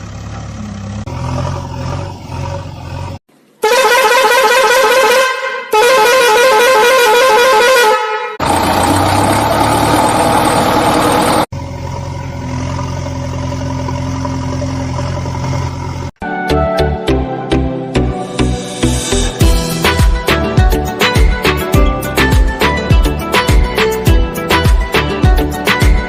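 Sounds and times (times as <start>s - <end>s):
engine running: 0.0s - 3.4s, 8.4s - 16.2s
warbling vehicle horn: 3.6s - 8.6s.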